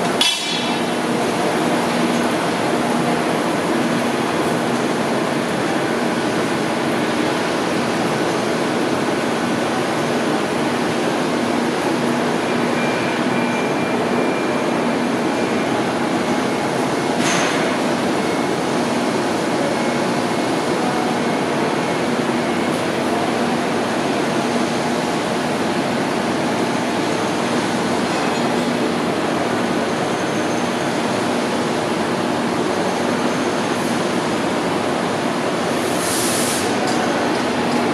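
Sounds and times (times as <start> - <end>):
rush of hiss: 35.9 - 36.7.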